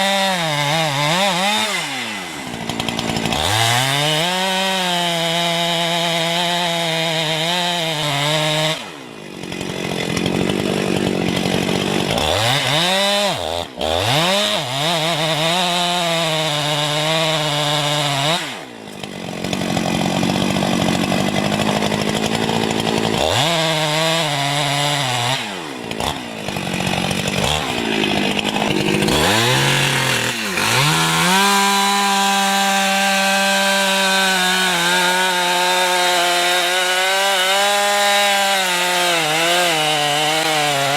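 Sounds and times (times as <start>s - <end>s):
wood-cutting machine engine labouring: 0.0s - 40.9s.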